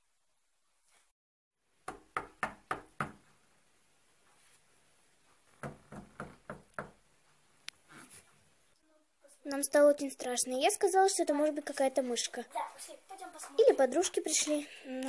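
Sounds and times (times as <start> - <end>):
knocking on a door: 1.8 - 3.2, 5.6 - 7.0.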